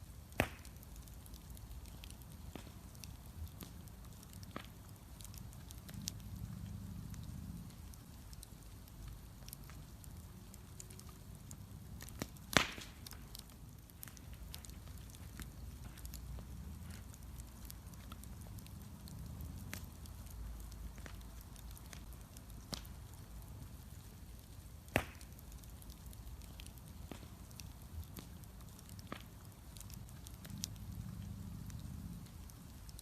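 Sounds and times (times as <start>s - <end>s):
bonfire crackling: 0.0s - 33.0s
loud sharp crack: 0.4s - 0.7s, 12.5s - 13.1s, 24.9s - 25.3s
low steady rumble: 1.0s - 33.0s.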